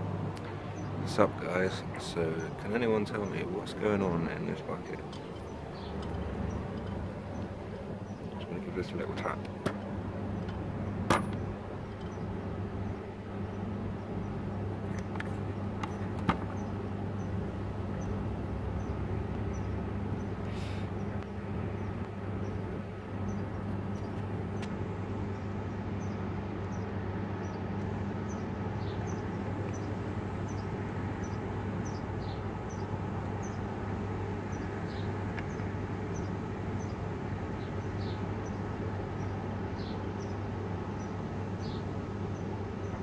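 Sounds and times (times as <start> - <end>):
low background hum and rumble: 0.0 - 43.0
small bird chirping: 4.1 - 9.5.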